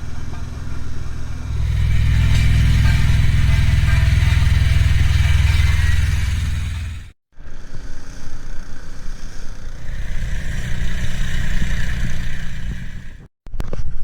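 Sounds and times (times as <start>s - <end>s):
engine rumbling: 0.0s - 7.2s, 9.1s - 13.3s.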